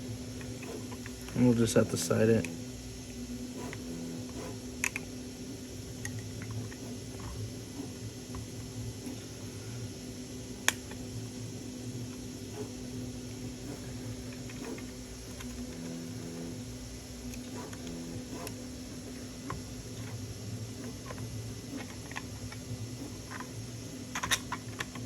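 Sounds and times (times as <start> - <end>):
steady low hum: 0.0 - 25.0
small plastic parts clicking: 3.6 - 5.1, 20.8 - 25.0.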